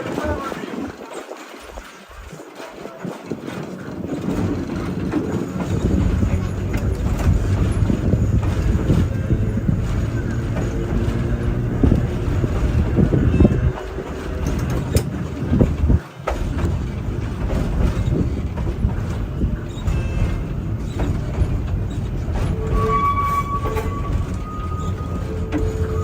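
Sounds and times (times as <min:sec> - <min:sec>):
streetcar wheels rumbling: 0:00.0 - 0:26.0
wheels clicking over rail joints: 0:00.0 - 0:26.0
steady high tones: 0:22.5 - 0:26.0.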